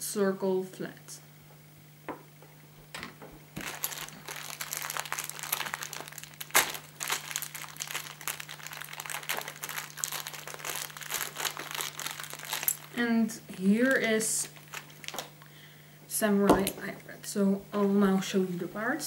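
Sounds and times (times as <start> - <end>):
plastic packaging crinkling: 3.5 - 15.5.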